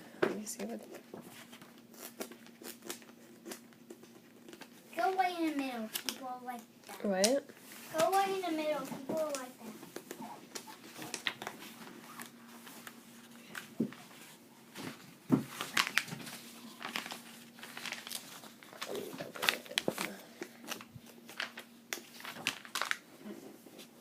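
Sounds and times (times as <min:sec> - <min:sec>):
paper pages rustling: 0:00.8 - 0:24.0.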